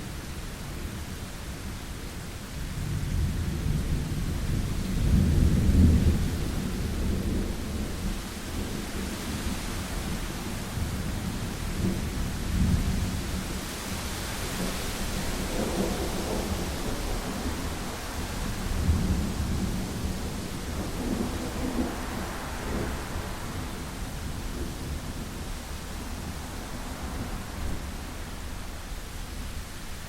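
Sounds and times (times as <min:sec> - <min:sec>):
steady rain: 0:00.0 - 0:30.0
low rolling thunder: 0:02.7 - 0:30.0.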